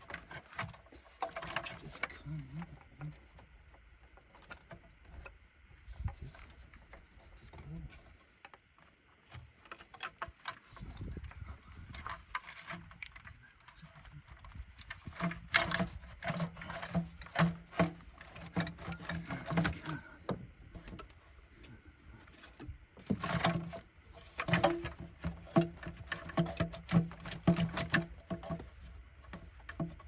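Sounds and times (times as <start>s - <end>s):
tools clicking and rattling on wiring: 0.0s - 3.4s, 9.6s - 21.2s, 22.3s - 30.0s.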